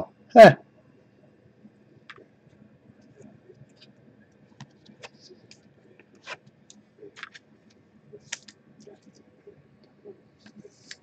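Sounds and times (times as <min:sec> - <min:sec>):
trading cards sliding and clicking: 0:04.6 - 0:07.5, 0:08.2 - 0:09.3, 0:10.4 - 0:11.0.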